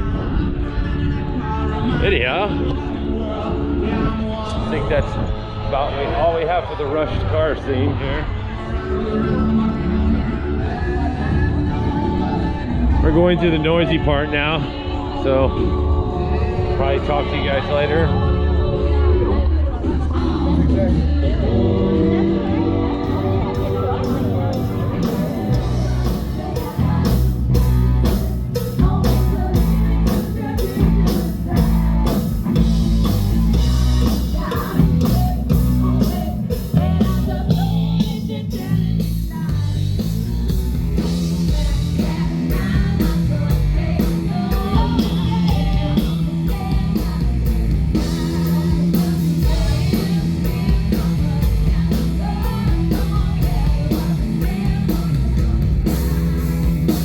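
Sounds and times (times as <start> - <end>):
bass guitar: 0.0 - 57.0
electric guitar: 0.0 - 57.0
person singing: 0.0 - 57.0
drum kit beat: 22.6 - 57.0.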